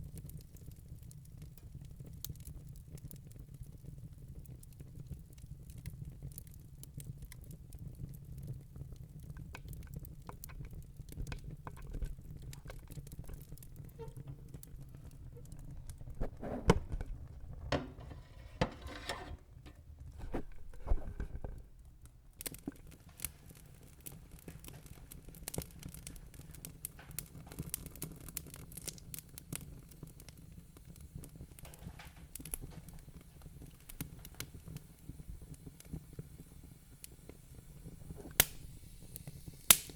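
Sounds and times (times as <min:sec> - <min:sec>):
fire rumbling and crackling: 0:00.0 - 0:18.6, 0:19.6 - 0:39.9
fire hissing: 0:23.0 - 0:39.9.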